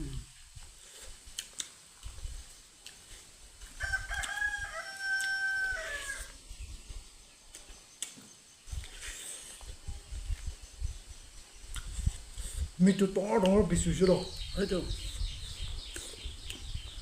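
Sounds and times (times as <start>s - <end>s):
rooster crowing: 3.8s - 6.4s.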